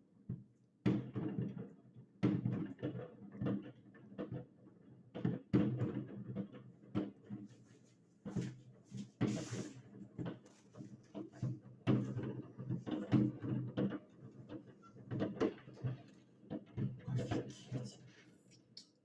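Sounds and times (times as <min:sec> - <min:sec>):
fireworks bangs and cracks: 0:05.2 - 0:07.6, 0:08.2 - 0:18.0
firework hiss: 0:09.3 - 0:09.7.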